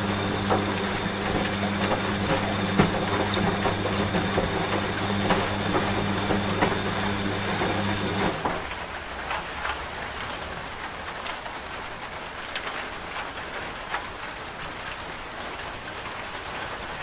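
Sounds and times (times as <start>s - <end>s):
washing machine humming: 0.0s - 9.0s
rain: 8.4s - 17.0s.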